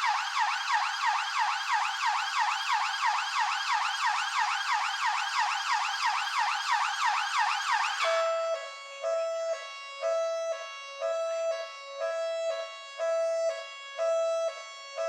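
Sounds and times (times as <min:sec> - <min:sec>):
police siren yelping: 0:00.0 - 0:09.6.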